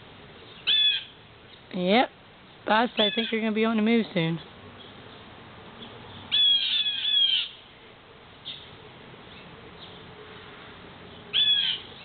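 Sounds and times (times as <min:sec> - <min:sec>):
blue jays scolding calls: 0:00.4 - 0:01.6, 0:02.7 - 0:03.8, 0:04.4 - 0:07.7, 0:11.1 - 0:12.0.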